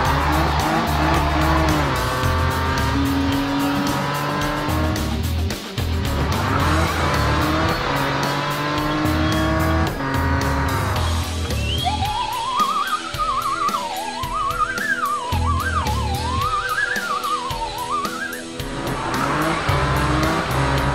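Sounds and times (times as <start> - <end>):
cartoon race car engine revving: 0.0 - 5.2, 6.0 - 11.2, 18.7 - 20.9
background music with steady beat: 0.0 - 20.9.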